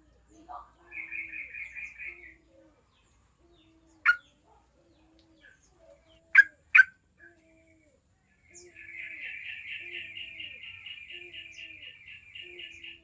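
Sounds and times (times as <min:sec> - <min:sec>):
bird giving sharp calls: 0:03.9 - 0:04.3, 0:06.3 - 0:07.0.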